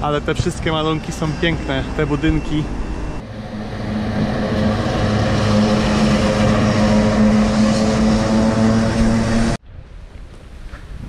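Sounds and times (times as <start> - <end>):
vehicle engine running: 3.1 - 9.6.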